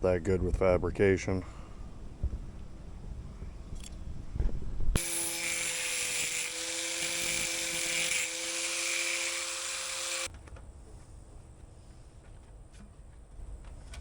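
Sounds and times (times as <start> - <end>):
electric grinder on sheet steel: 5.0 - 10.3.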